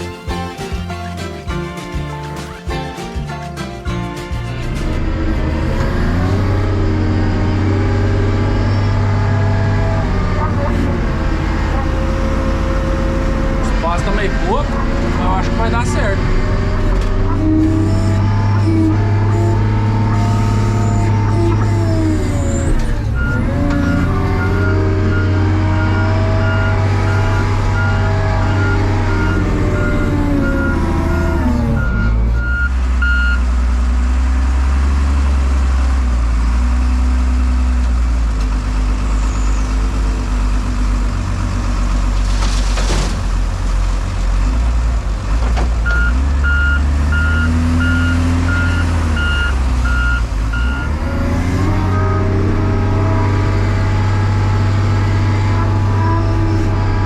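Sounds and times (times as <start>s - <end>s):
diesel engine running hard: 2.5s - 57.0s
reversing alarm beeping: 17.4s - 33.4s, 45.9s - 53.0s.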